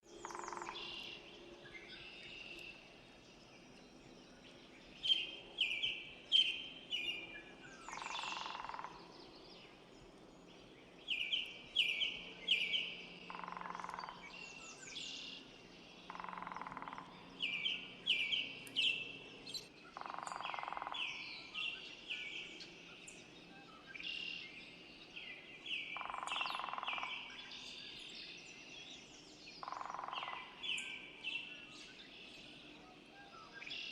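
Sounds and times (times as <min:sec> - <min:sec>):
lower rough bird sound: 0:00.0 - 0:02.8, 0:04.4 - 0:09.4, 0:11.1 - 0:28.2, 0:28.9 - 0:33.9
songbirds chirping: 0:00.0 - 0:33.9.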